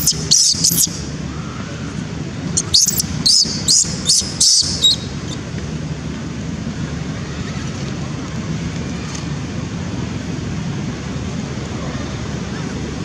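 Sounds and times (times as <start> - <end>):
baby monkey squealing: 0.0 - 1.0, 2.6 - 5.4.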